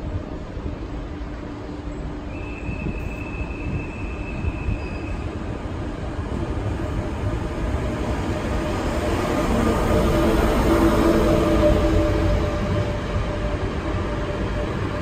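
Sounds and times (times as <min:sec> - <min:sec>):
high steady squeal: 0:02.3 - 0:05.4.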